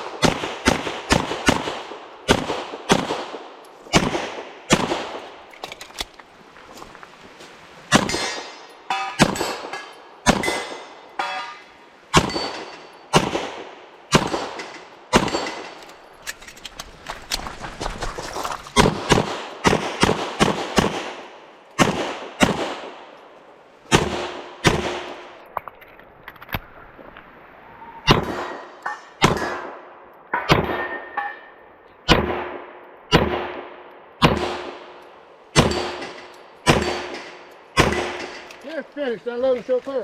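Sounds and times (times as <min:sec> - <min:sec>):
pistol shots: 0:00.0 - 0:05.4, 0:07.9 - 0:11.3, 0:12.1 - 0:15.8, 0:18.8 - 0:21.2, 0:21.8 - 0:23.0, 0:23.9 - 0:25.2, 0:28.1 - 0:29.8, 0:32.1 - 0:35.0, 0:35.6 - 0:38.5
steel targets ringing: 0:08.1 - 0:13.2, 0:35.6 - 0:38.5.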